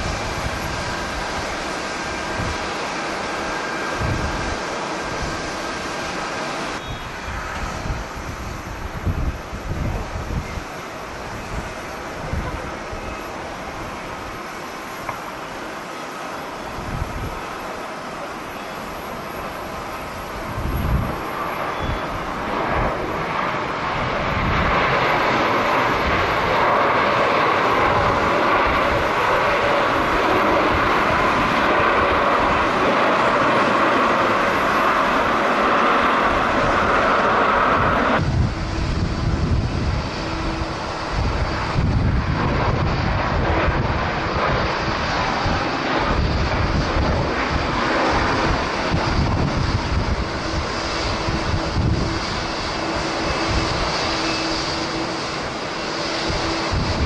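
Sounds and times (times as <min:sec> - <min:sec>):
wind buffeting microphone: 0:00.0 - 0:15.2, 0:16.6 - 0:17.6, 0:19.0 - 0:57.0
jet engines roaring: 0:00.0 - 0:57.0.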